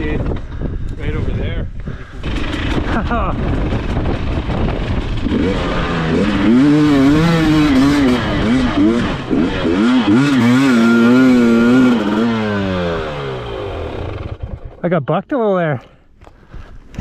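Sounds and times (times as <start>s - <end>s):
dirt bike engine revving: 2.0s - 14.8s.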